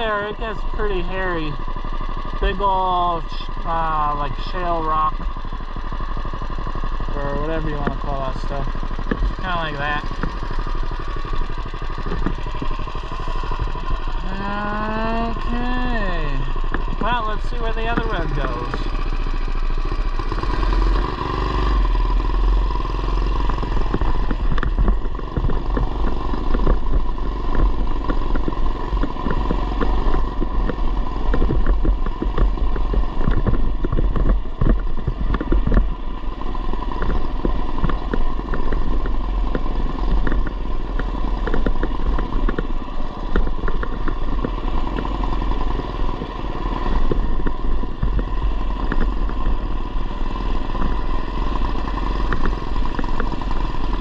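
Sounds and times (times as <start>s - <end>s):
mini bike engine running: 0.0s - 54.0s
bike knocks and rattles: 5.1s - 14.2s, 23.4s - 54.0s.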